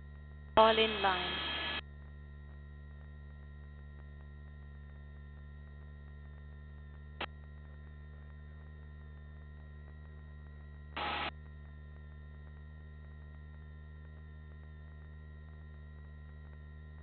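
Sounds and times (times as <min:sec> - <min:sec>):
steady low intercom hum: 0:00.5 - 0:01.8, 0:10.9 - 0:11.4.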